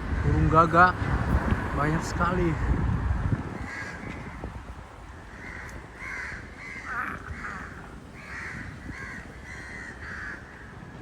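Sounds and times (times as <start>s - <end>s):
crows cawing: 3.6s - 4.5s, 5.2s - 11.0s.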